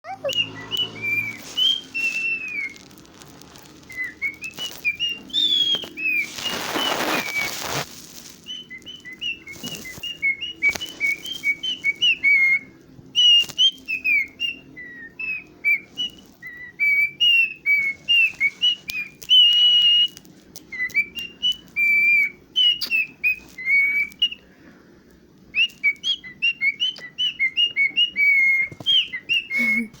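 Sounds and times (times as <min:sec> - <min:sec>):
cockatiel whistling: 0:00.1 - 0:24.4, 0:25.5 - 0:30.0
rustling noise: 0:00.8 - 0:14.5, 0:15.6 - 0:22.3.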